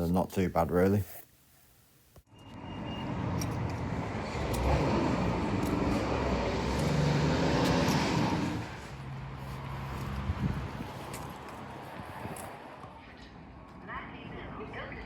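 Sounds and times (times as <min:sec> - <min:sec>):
passing vehicle engine: 0:02.3 - 0:13.3.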